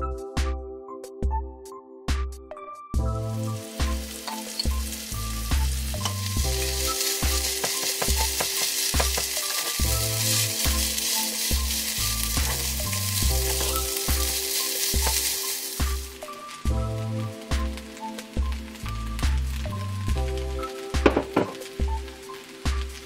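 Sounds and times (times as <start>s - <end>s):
quiet music with pulsing bass: 0.0s - 23.0s
food sizzling in a frying pan: 3.3s - 23.0s
spoon scraping a pan: 4.2s - 4.9s, 6.0s - 15.6s.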